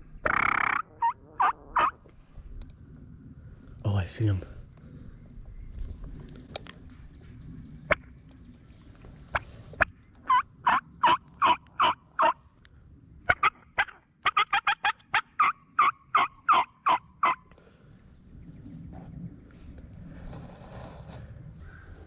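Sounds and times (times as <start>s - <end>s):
turkey yelping: 0.2s - 2.0s, 10.3s - 12.4s, 13.3s - 17.4s.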